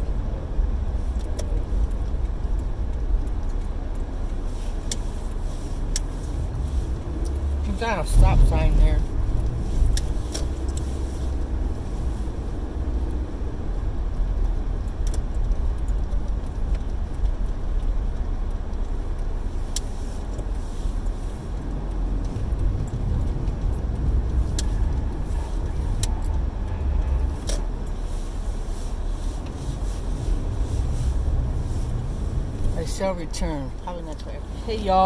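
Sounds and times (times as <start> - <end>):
car road noise rumble: 0.0 - 35.0.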